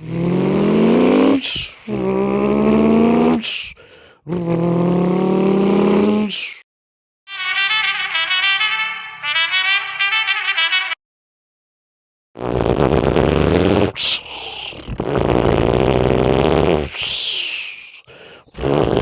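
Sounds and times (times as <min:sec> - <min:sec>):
man imitating car engine: 0:00.0 - 0:06.6, 0:12.4 - 0:19.0.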